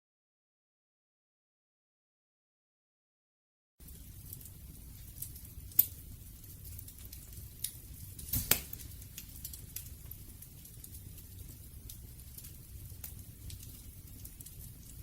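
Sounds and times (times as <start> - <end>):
fire popping and snapping: 3.8 - 15.0
wood fire crackling: 3.8 - 15.0.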